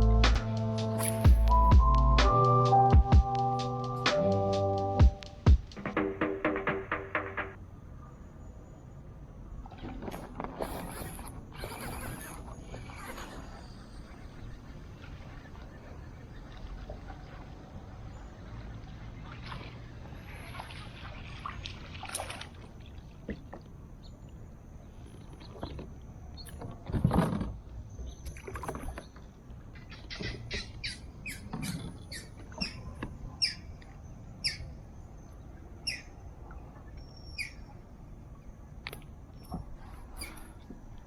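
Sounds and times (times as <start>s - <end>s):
bird chirping: 29.8s - 33.8s, 34.4s - 36.2s, 37.0s - 37.8s.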